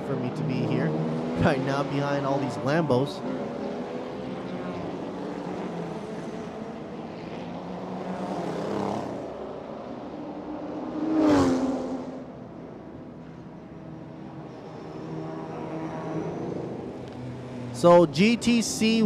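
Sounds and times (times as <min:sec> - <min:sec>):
race car engines running: 0:00.0 - 0:19.0
engine revving: 0:00.1 - 0:09.6.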